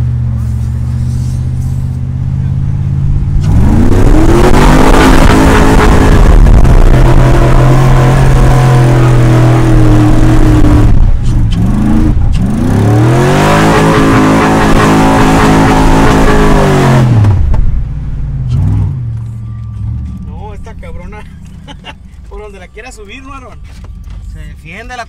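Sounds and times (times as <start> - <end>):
vehicle engine revving: 0.0 - 22.3.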